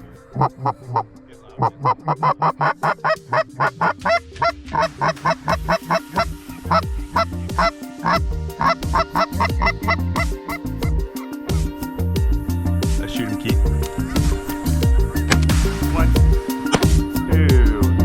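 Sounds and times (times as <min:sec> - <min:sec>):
geese honking: 0:00.0 - 0:11.4
music with heavy bass: 0:00.0 - 0:18.0.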